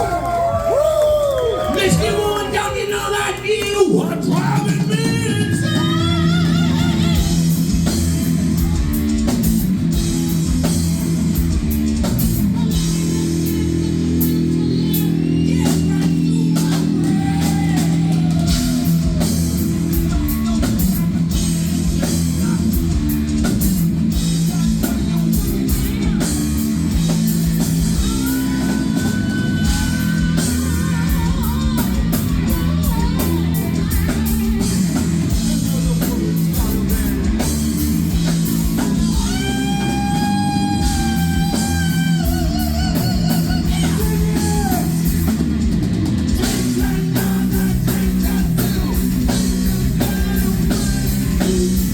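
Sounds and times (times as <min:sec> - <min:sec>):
bass guitar: 0:00.0 - 0:51.9
drum kit with cymbal crashes: 0:03.9 - 0:51.9
distorted electric guitar riff: 0:04.0 - 0:51.9.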